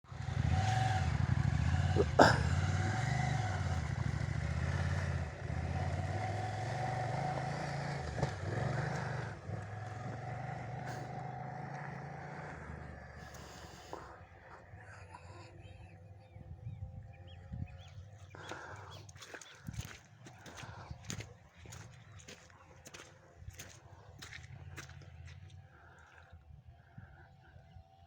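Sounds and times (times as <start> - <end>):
motorcycle engine revving: 0.1 - 14.8.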